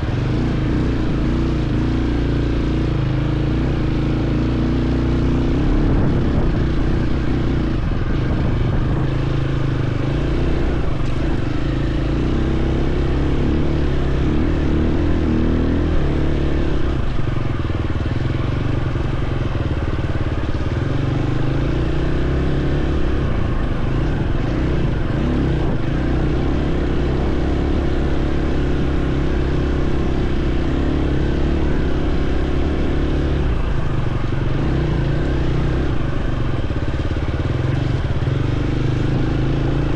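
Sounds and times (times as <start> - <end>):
dirt bike engine revving: 20.8 - 39.9.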